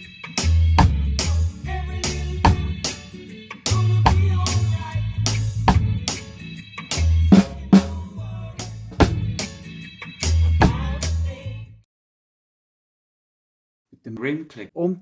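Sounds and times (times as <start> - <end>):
drum kit playing reggae beat: 0.0 - 11.5
bass line: 0.4 - 2.9, 3.7 - 6.1, 7.0 - 9.6, 10.3 - 11.7.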